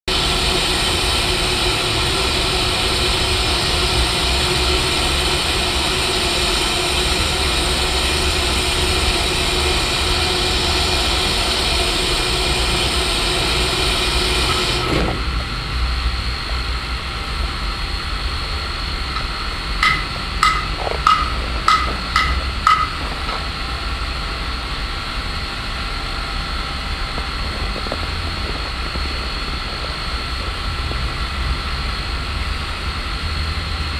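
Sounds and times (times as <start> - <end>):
steam hissing: 0.1 - 32.9
ringing metallic knocks: 19.2 - 23.5.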